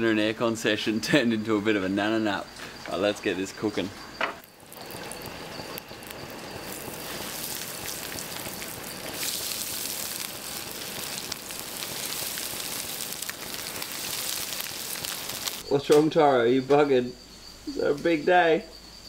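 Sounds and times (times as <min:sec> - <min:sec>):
seafood sizzling in hot oil: 0:04.1 - 0:15.7.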